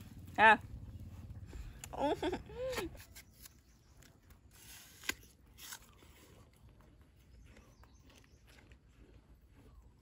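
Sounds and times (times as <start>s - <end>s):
crisp bite into fruit: 3.0s - 9.8s
faint chewing with clicks: 5.4s - 10.0s.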